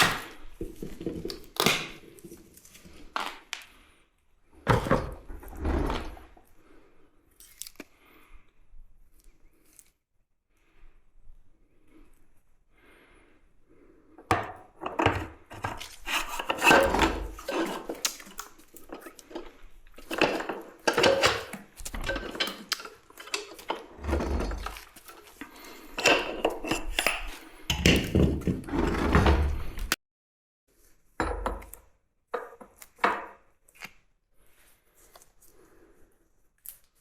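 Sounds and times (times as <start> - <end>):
metal parts and tools clattering: 14.2 - 29.8.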